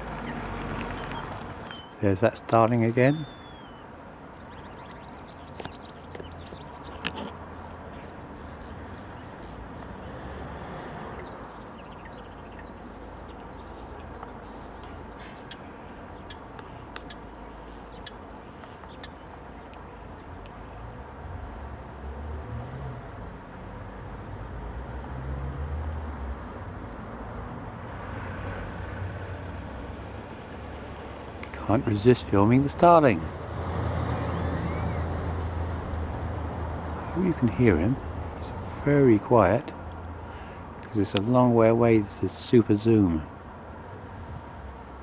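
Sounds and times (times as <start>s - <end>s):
distant starling singing: 0.0s - 21.0s, 34.1s - 35.4s, 36.8s - 43.2s
low outdoor rumble: 26.0s - 45.0s.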